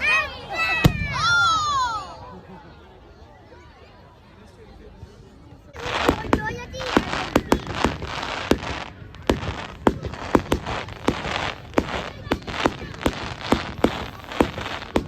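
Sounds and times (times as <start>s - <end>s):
fireworks cracks and bangs: 5.8s - 15.0s
hissing crackle: 5.8s - 15.0s.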